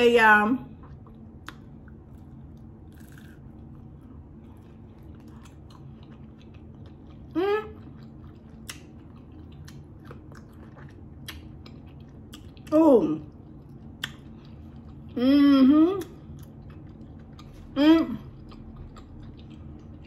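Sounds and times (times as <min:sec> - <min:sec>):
close chewing: 0:00.8 - 0:12.7, 0:16.0 - 0:20.0
wet mouth clicks: 0:14.0 - 0:14.2.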